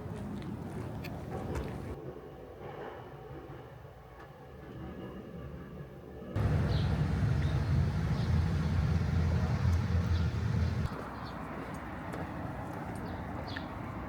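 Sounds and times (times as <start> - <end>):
outdoor ambience: 0.0 - 14.0
vehicle rumble: 6.4 - 14.0.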